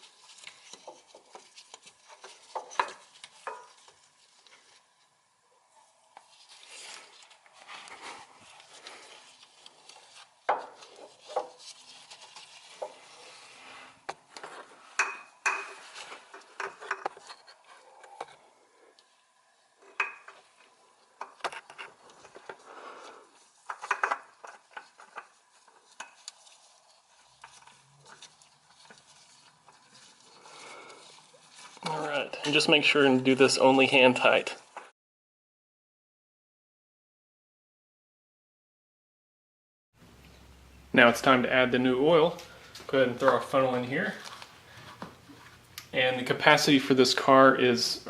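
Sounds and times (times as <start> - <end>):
clinks and scrapes on metal parts: 14.3 - 18.4.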